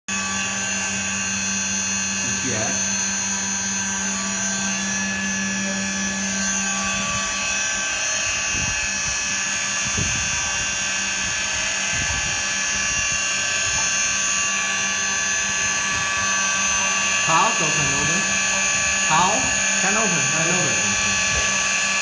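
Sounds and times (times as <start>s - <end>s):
cnc router high-pitched whine: 0.1s - 22.0s
low hum: 13.6s - 22.0s.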